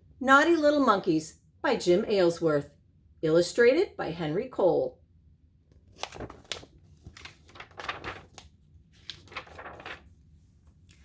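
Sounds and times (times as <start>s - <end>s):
book pages turning: 5.7s - 11.0s.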